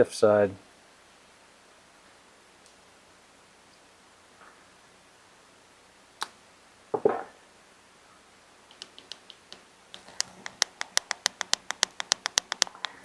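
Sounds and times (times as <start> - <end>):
light quick clicks: 8.7 - 13.0
sharp click: 8.7 - 13.0.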